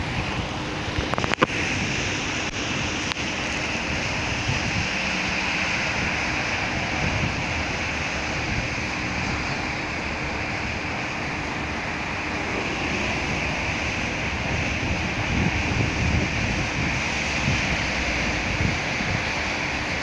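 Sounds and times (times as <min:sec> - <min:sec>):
steady rain hiss: 0:00.0 - 0:20.0
low rumbles: 0:06.6 - 0:19.6.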